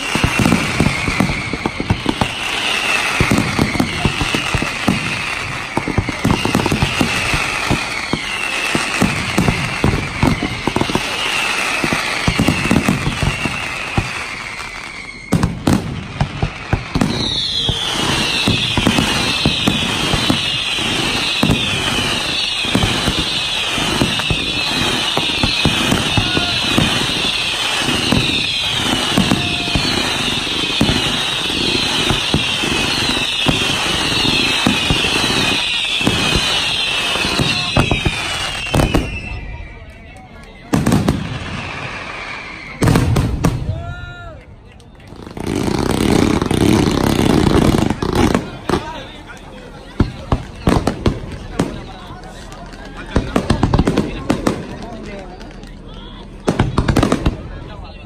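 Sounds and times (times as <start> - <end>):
falling firework whistles: 0.0 - 57.7
fireworks bangs and crackle: 0.0 - 58.0.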